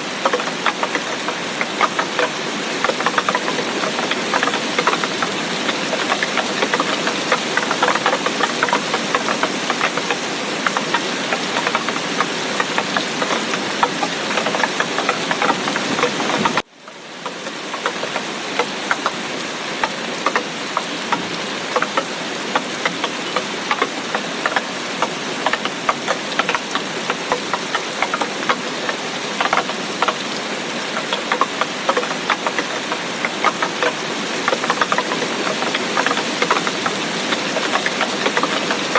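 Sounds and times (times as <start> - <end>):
heavy rain falling: 0.0 - 38.9
rain drops striking: 0.0 - 38.9.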